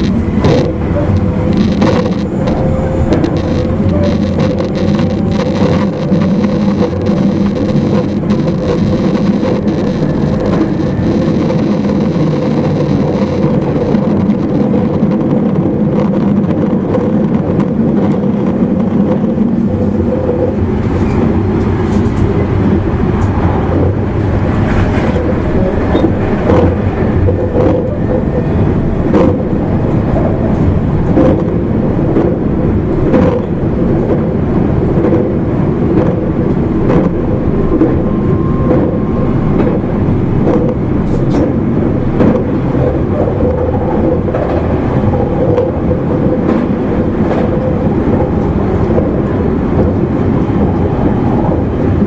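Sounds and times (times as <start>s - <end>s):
traction motor hum: 0.0s - 20.8s
track clicks and knocks: 0.0s - 22.5s, 23.1s - 52.0s
train wheels rumbling on rail: 0.0s - 52.0s.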